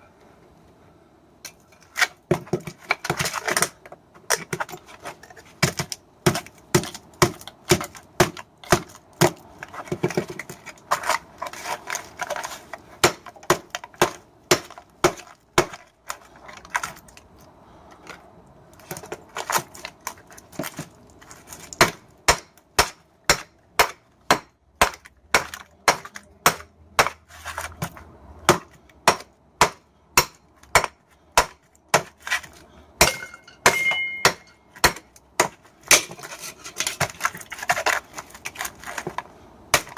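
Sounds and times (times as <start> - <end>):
hammer striking metal: 33.0 - 35.0.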